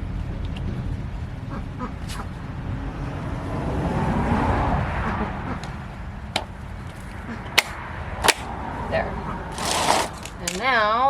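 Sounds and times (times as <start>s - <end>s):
steady low rumble: 0.0s - 9.6s
plastic crate panels handled: 9.6s - 10.7s.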